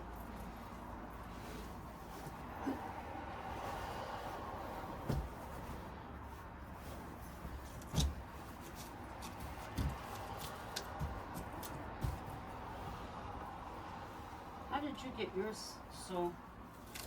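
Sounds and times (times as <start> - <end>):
steady room hum: 0.0 - 17.0
dull thumps and knocks: 5.0 - 5.6, 7.5 - 12.6.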